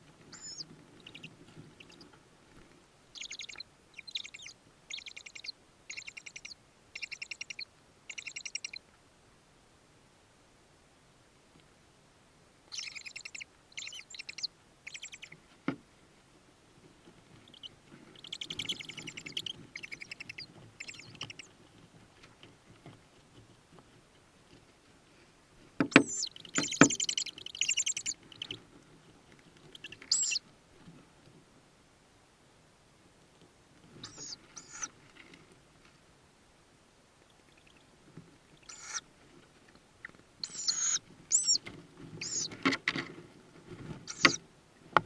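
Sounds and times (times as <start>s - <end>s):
owl chicks chittering: 0.2s - 2.1s, 3.1s - 8.8s, 12.7s - 15.4s, 17.4s - 21.5s, 25.8s - 28.6s, 29.6s - 30.4s, 34.0s - 35.0s, 37.2s - 37.9s, 38.6s - 39.1s, 40.0s - 42.8s, 44.0s - 44.4s.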